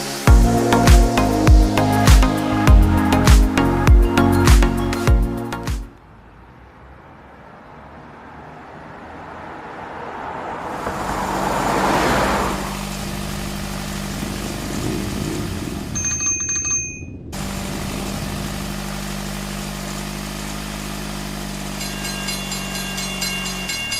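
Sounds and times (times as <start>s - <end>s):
vehicle engine idling: 0.0s - 5.4s, 10.7s - 16.2s, 17.4s - 23.9s
high-pitched ringing tone: 15.9s - 17.4s, 21.6s - 23.9s.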